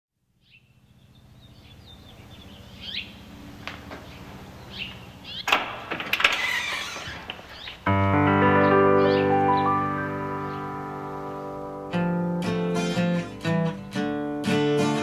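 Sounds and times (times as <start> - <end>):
birds chirping: 0.4 - 12.3.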